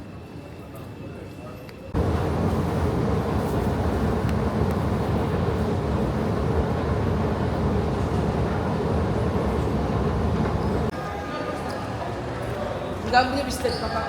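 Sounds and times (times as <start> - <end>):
vehicle running rumble: 2.0 - 10.9.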